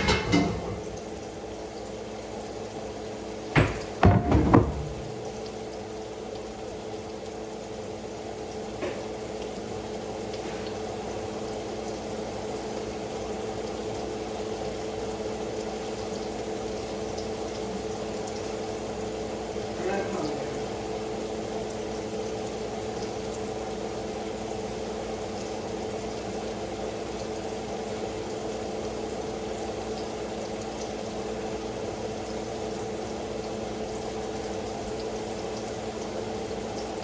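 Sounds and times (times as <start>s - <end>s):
kitchen appliance humming: 0.0s - 2.0s, 2.8s - 5.8s, 19.5s - 21.5s.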